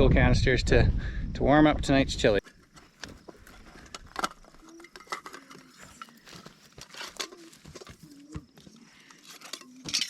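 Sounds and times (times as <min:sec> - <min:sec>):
rustling and handling canisters: 0:02.4 - 0:10.0.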